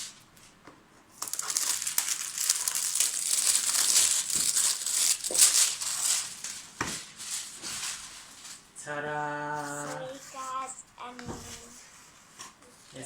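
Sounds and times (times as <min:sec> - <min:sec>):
packaging crinkling and rustling: 0:01.1 - 0:08.8.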